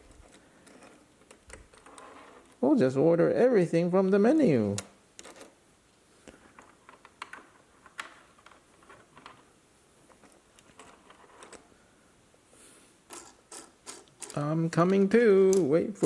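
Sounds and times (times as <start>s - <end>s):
plastic toys clicking and tapping: 13.1s - 15.8s.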